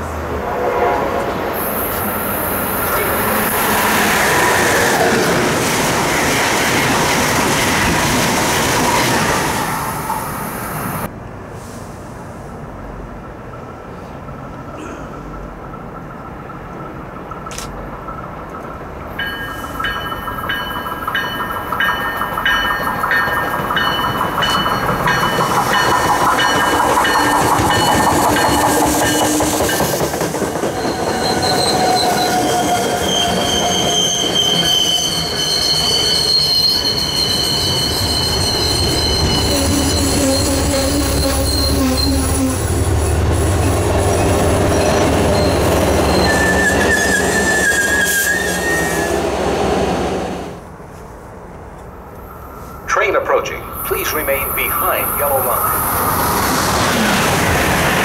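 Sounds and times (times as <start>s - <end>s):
train wheels rumbling and clacking: 1.2s - 11.1s, 12.1s - 50.1s
high ringing: 19.2s - 28.6s
high-pitched wheel squeal: 30.8s - 42.8s, 44.7s - 49.2s.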